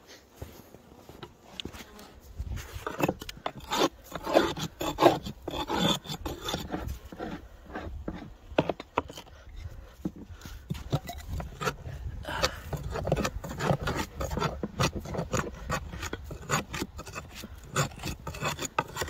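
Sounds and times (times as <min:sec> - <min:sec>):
scraping and crunching of snow: 0:00.0 - 0:08.4.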